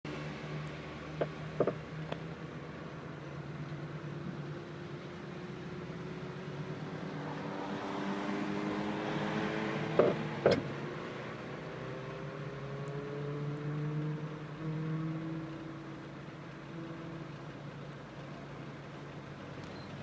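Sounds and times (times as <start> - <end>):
vehicle engine running: 0.1 - 6.9, 9.3 - 11.7.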